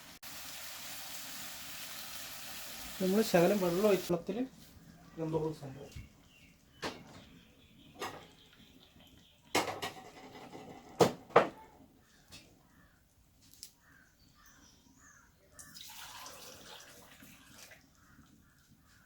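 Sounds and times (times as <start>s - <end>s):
watery hiss: 0.0s - 4.1s.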